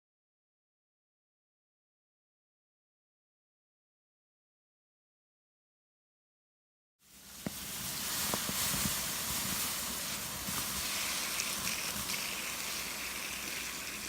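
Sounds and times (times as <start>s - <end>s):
campfire hissing: 7.0s - 14.0s
campfire crackles: 7.1s - 14.0s.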